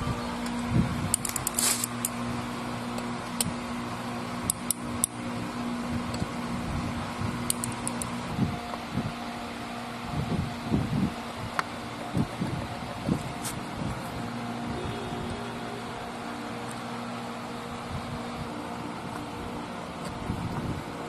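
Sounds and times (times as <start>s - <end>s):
workshop fan humming: 0.0s - 21.0s
metallic clicks and clinks of tools: 0.4s - 2.2s, 7.5s - 8.1s.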